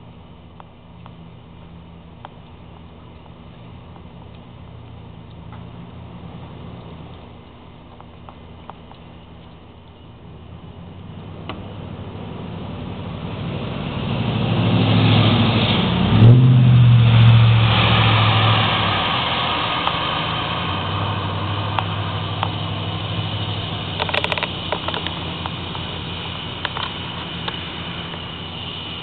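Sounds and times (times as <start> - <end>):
vehicle passing on wet road: 11.0 - 29.0.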